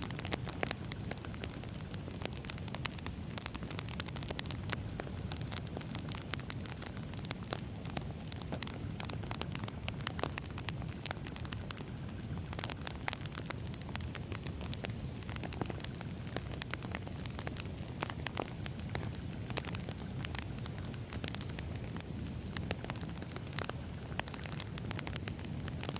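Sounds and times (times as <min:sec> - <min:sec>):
firewood crackling and popping: 0:00.0 - 0:25.9
wood fire rumbling: 0:00.0 - 0:25.9.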